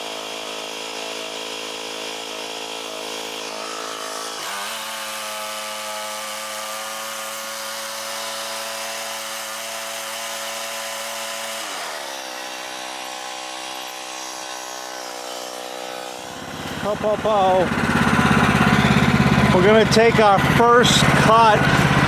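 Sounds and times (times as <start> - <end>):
sawmill engine running: 0.1 - 22.0.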